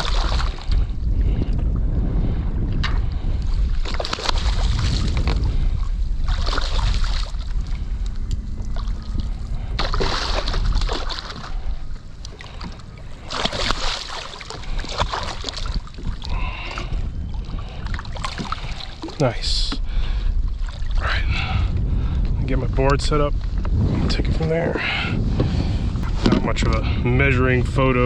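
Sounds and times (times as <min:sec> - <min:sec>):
water splashing against kayak: 0:00.0 - 0:22.0
wind rumbling on microphone: 0:00.0 - 0:28.0.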